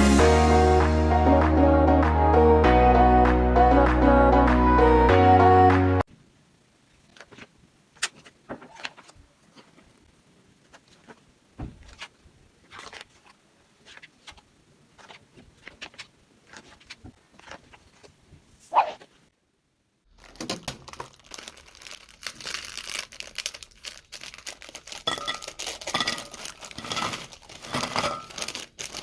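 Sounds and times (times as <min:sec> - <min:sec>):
song playing: 0:00.0 - 0:06.0
kitchen utensils clicking: 0:25.1 - 0:28.5.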